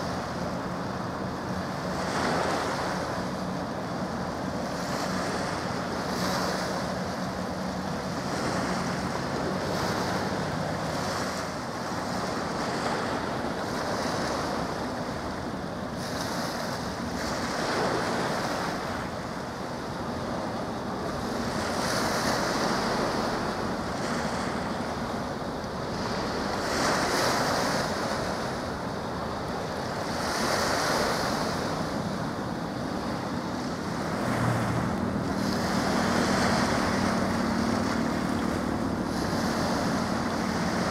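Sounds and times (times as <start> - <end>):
faint low engine hum: 0.0 - 40.9
sea water washing: 0.0 - 40.9.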